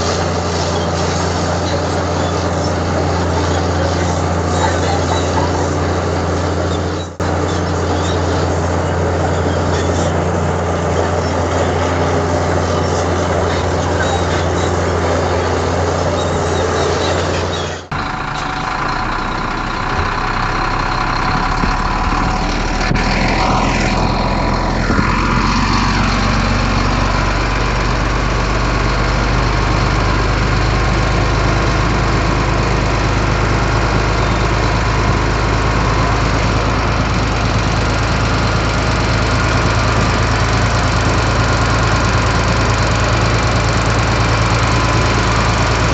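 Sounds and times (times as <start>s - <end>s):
gliding squeals: 0.0s - 27.3s
diesel machinery engine running: 0.0s - 45.9s.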